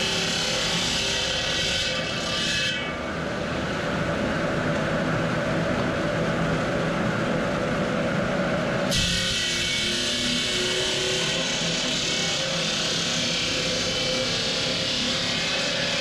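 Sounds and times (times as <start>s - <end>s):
stone-cutting machinery running: 0.0s - 3.9s, 8.9s - 16.0s.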